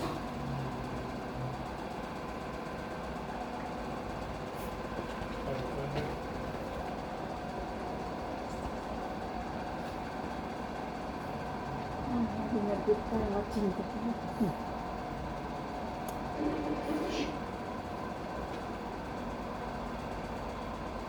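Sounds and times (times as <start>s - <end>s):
faint constant hum: 5.3s - 21.0s.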